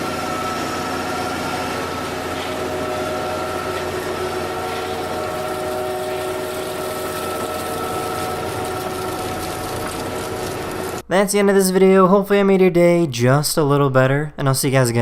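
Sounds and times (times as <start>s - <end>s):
harvesting machine running: 0.0s - 11.0s
machinery whining tones: 0.0s - 11.0s.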